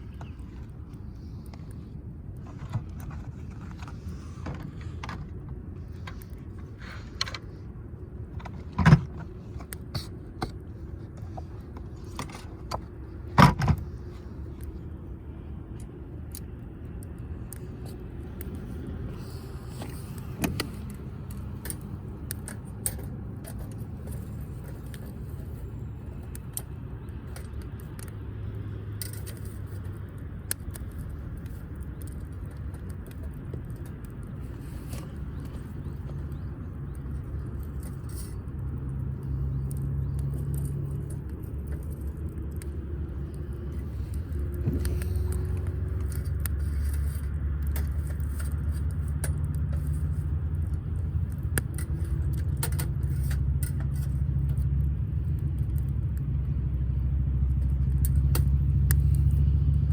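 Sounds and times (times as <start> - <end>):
steady low rumble: 0.0 - 59.9
wood fire crackling: 9.3 - 59.9.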